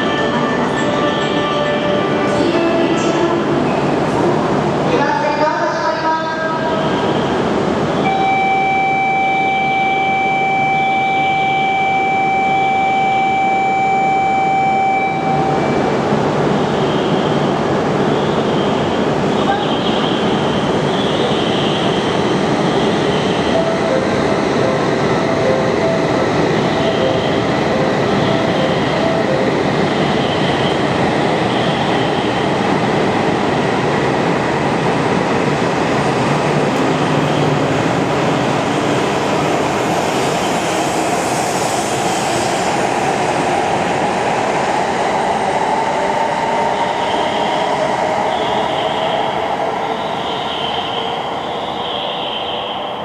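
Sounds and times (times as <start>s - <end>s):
train wheel and rail noise: 0.0s - 53.0s.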